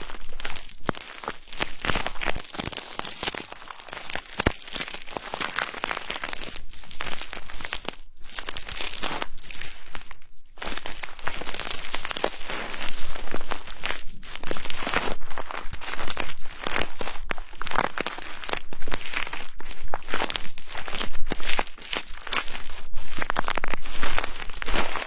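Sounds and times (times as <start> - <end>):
crinkly rustling on microphone: 0.0 - 25.0.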